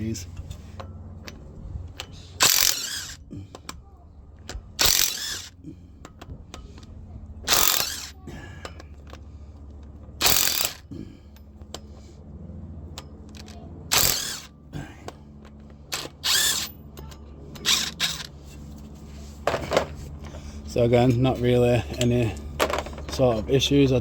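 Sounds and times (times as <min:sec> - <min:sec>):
low steady hum: 0:00.0 - 0:24.0
power tool loud bursts: 0:02.4 - 0:03.2, 0:04.8 - 0:05.6, 0:07.5 - 0:08.1, 0:10.2 - 0:10.8, 0:13.9 - 0:14.5, 0:16.0 - 0:16.7, 0:17.7 - 0:18.3.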